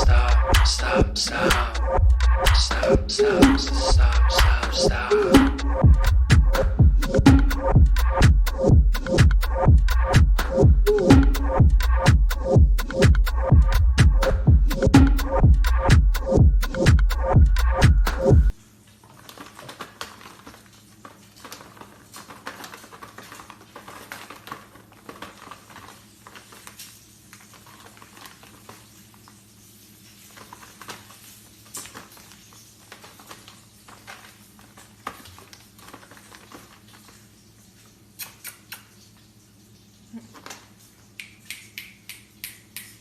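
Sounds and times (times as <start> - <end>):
steady low hum: 0.0 - 18.6.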